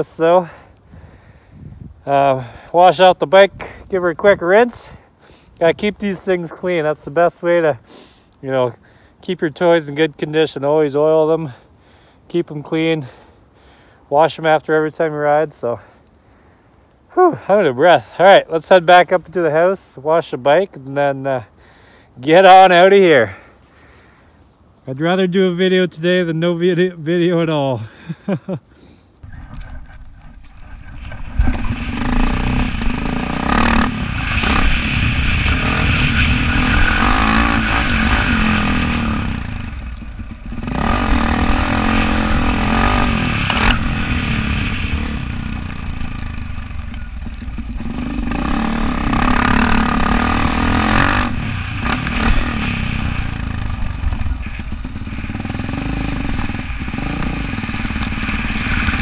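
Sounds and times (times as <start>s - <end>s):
dirt bike engine revving: 30.6s - 59.0s.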